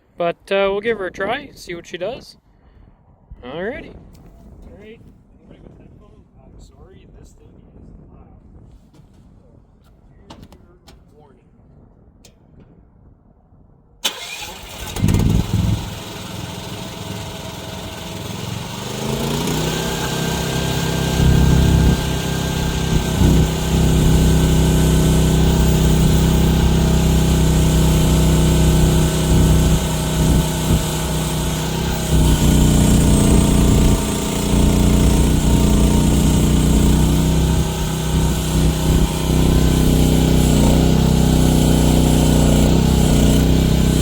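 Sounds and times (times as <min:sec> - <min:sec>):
excavator engine revving: 0:14.1 - 0:44.0.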